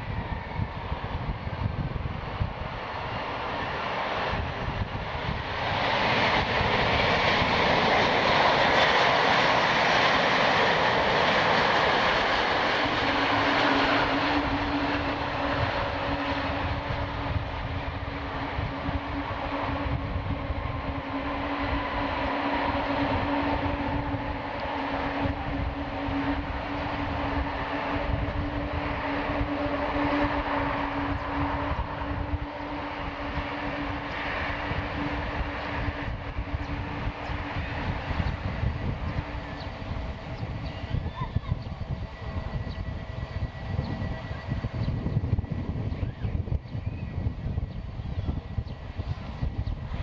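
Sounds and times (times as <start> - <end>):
jet engine noise: 0.0 - 50.0
steady low tone: 12.4 - 49.8.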